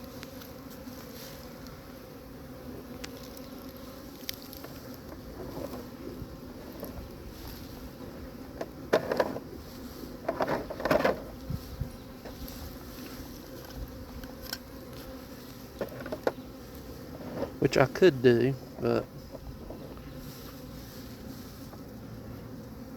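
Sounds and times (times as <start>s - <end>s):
bee swarm buzzing: 0.0s - 22.9s
sharp knocks and rustles: 4.3s - 5.9s, 8.6s - 9.5s, 10.2s - 16.4s.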